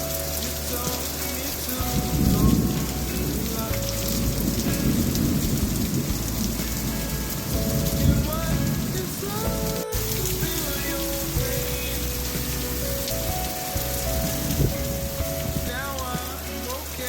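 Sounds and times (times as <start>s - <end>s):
heavy rain pouring: 0.0s - 17.0s
low rumble of thunder: 1.8s - 16.1s.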